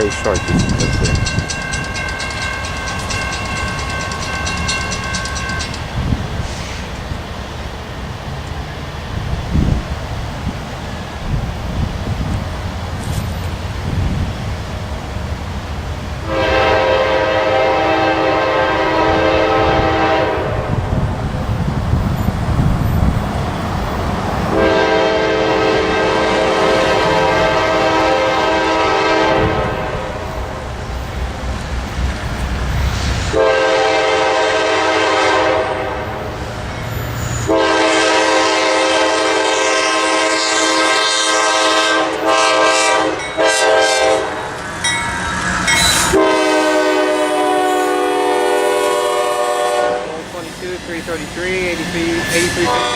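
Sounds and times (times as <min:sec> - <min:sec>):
low train rumble: 0:00.0 - 0:52.9
locomotive air horn blasts: 0:16.2 - 0:20.8, 0:24.5 - 0:30.3, 0:33.3 - 0:36.1, 0:37.4 - 0:44.5, 0:46.0 - 0:50.2.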